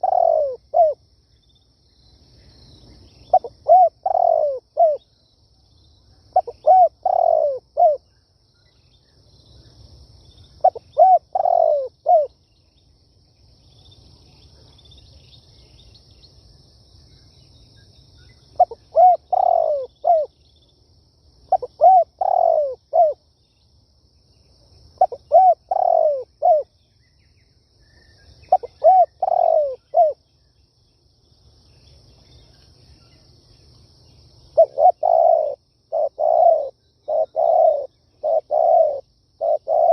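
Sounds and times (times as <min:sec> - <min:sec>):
dove cooing: 0:00.0 - 0:01.0, 0:03.2 - 0:05.0, 0:06.3 - 0:08.0, 0:10.6 - 0:12.3, 0:18.6 - 0:20.3, 0:21.5 - 0:23.2, 0:25.0 - 0:26.7, 0:28.5 - 0:30.2, 0:34.6 - 0:39.9.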